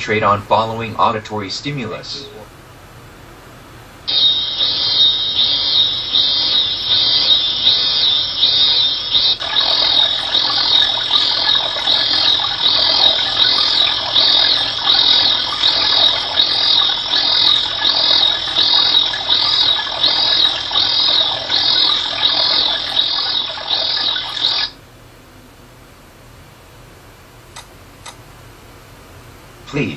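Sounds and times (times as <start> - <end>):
high pulsing chirps: 2.0 - 2.5, 4.1 - 24.8.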